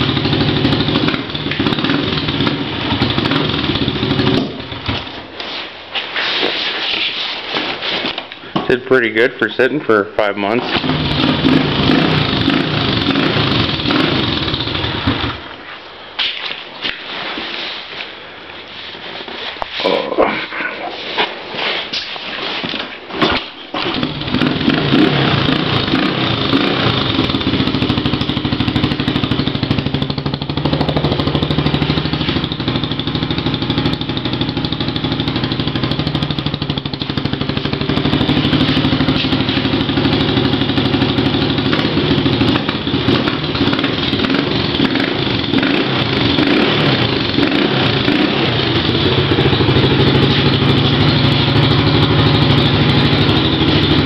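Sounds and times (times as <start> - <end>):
dirt bike engine running: 0.0 - 5.2, 10.7 - 15.4, 23.8 - 54.0.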